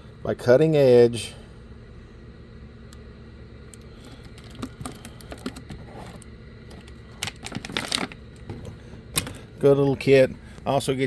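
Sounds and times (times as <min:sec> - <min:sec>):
packaging clicks and rustles: 0:04.0 - 0:09.5
packaging crinkling: 0:06.7 - 0:08.6.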